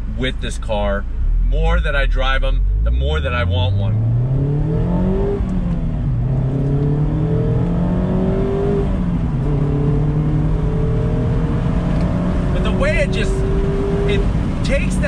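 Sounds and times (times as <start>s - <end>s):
car engine accelerating: 0.0s - 15.0s
wind and road noise: 0.0s - 15.0s.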